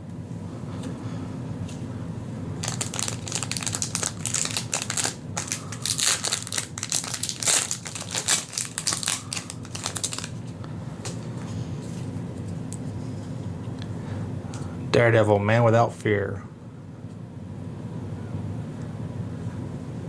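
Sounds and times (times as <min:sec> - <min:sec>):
wrapping crinkling as torn: 0:02.6 - 0:11.4.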